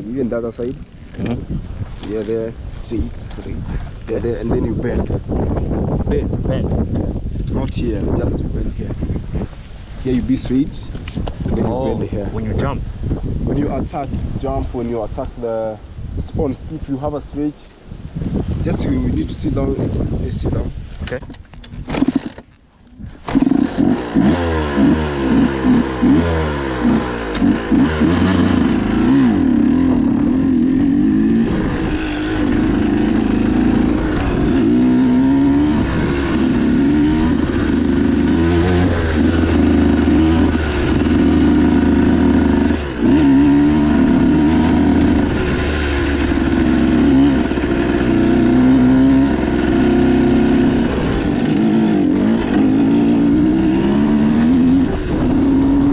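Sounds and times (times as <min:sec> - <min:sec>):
dirt bike engine revving: 0:21.9 - 0:22.4, 0:23.0 - 0:55.9.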